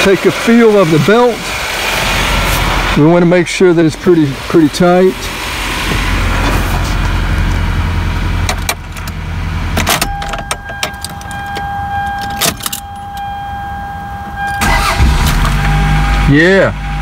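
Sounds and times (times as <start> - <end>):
car engine idling: 0.0 - 17.0
keys jangling in ignition: 9.8 - 13.3
warning buzzer tone: 15.6 - 17.0.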